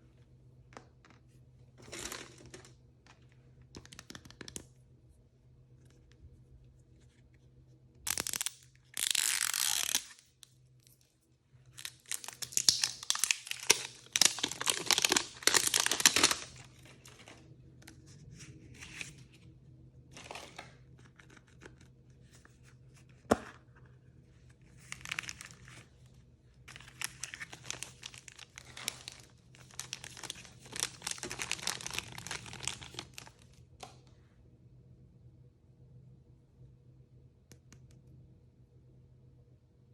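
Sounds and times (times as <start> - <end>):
plastic packaging tearing and crinkling: 8.1 - 10.2, 11.7 - 16.8, 24.8 - 25.8, 26.7 - 33.5.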